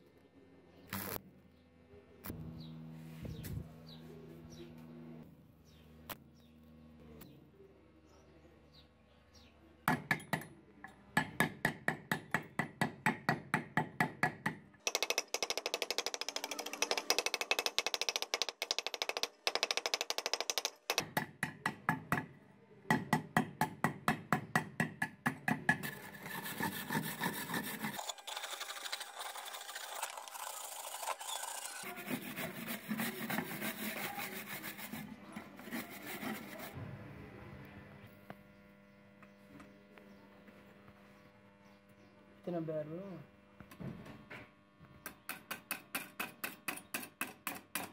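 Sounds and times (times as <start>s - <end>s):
brush scrubbing chain: 25.9s - 36.8s.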